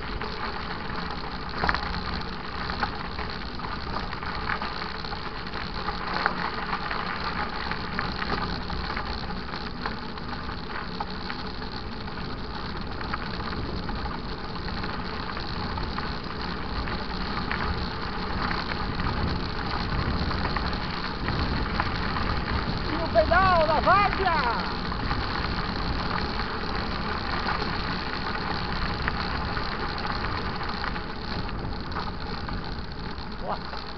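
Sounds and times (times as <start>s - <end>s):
mountain bike rattling on dirt trail: 0.0s - 33.9s
tyre noise: 10.7s - 33.9s.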